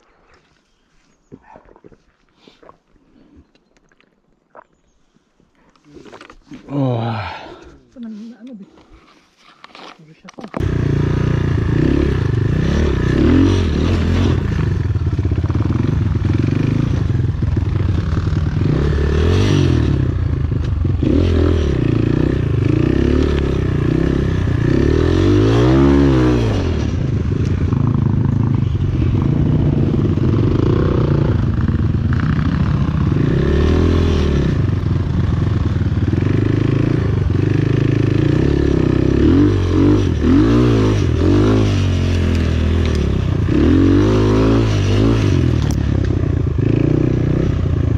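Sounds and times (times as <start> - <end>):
motorcycle engine revving: 10.6 - 47.9.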